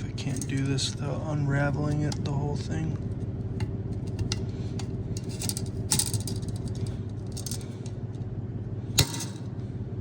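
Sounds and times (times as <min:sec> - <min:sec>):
steady low hum: 0:00.0 - 0:10.0
small metal parts clicking: 0:04.0 - 0:07.9, 0:09.0 - 0:09.5.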